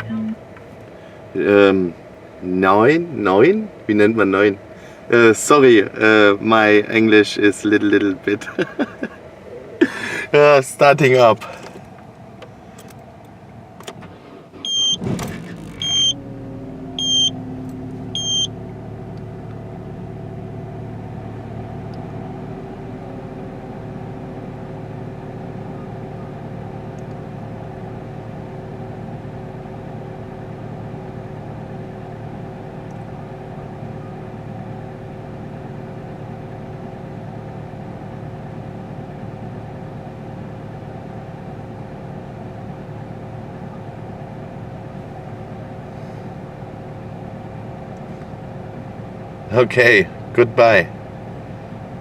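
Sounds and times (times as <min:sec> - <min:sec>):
car engine cold-starting and idling: 0:00.0 - 0:52.0
electronic warning chimes: 0:18.2 - 0:18.5.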